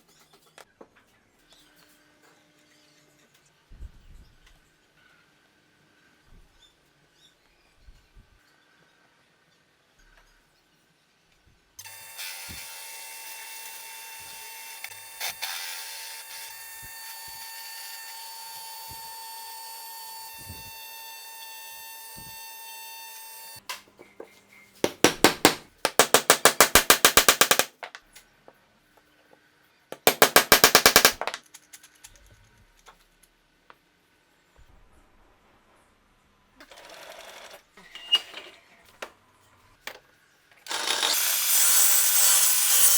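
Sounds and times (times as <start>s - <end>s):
power tool whining: 11.8s - 23.6s.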